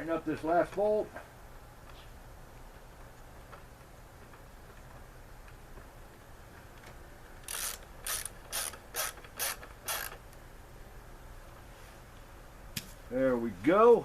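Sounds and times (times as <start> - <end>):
ratchet wrench clicking: 7.4 - 10.2.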